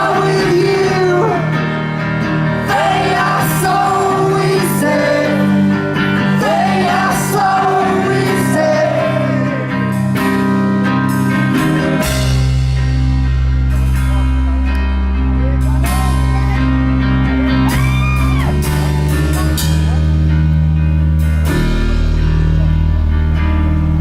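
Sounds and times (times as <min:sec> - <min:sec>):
person singing: 0:00.0 - 0:01.7, 0:02.6 - 0:09.9
live rock band playing: 0:00.0 - 0:24.0.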